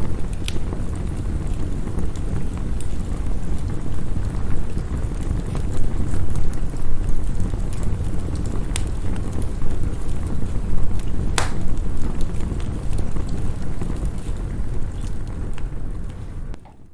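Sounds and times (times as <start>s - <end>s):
wood fire crackling and popping: 0.0s - 16.9s.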